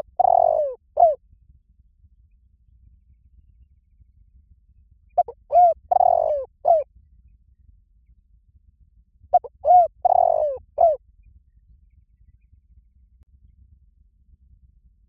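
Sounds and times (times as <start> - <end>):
dove cooing: 0.0 - 1.2, 5.2 - 6.8, 9.4 - 11.0.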